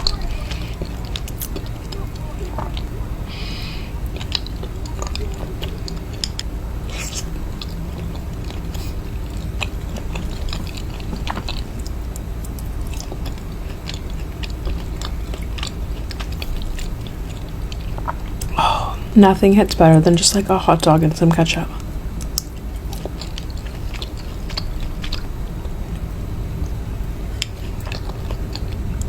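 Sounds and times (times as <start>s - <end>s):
chewing and biting food: 0.0s - 29.0s
low background hum: 0.0s - 29.0s
wet mouth clicks: 3.5s - 19.1s.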